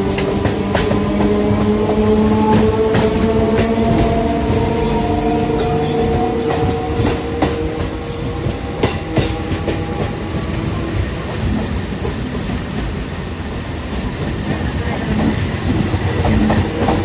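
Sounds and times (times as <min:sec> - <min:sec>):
steady train whine: 0:00.0 - 0:17.0
train rumbling on track: 0:00.0 - 0:17.0.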